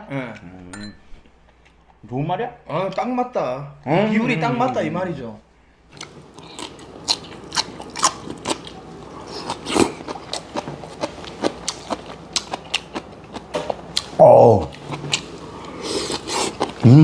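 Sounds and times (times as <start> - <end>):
man chewing with mouth smacks: 5.9 - 16.8.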